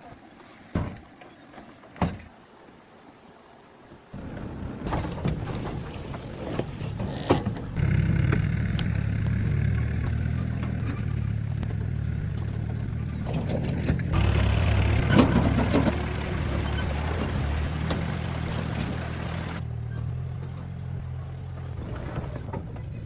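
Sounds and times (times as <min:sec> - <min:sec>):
truck engine running: 0:07.6 - 0:23.0
clatter and knocks: 0:09.7 - 0:23.0.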